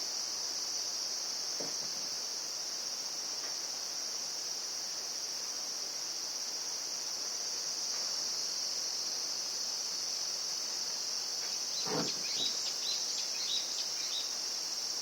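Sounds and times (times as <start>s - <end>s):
insects shrilling: 11.5s - 14.2s.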